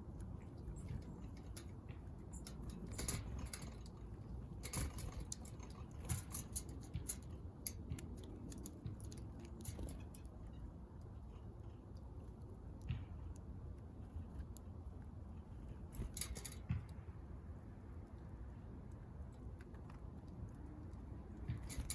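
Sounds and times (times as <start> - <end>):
steady low rumble: 0.0 - 21.0
birds pecking at seed: 0.0 - 21.9.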